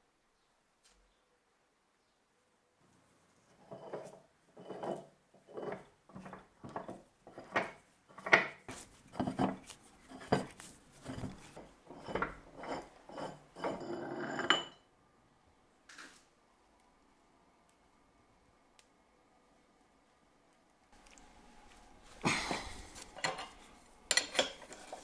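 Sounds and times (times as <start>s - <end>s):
scraping strokes on metal: 3.5s - 14.7s.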